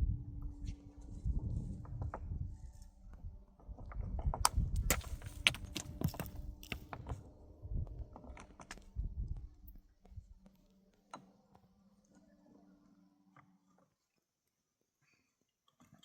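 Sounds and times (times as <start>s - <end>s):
hard objects knocking together: 4.8s - 7.1s.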